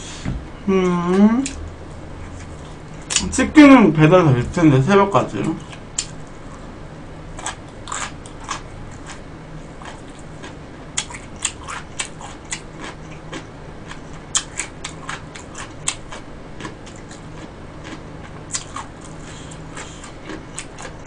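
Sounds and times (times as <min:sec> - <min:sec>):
wet chewing mouth clicks: 0:11.0 - 0:16.0.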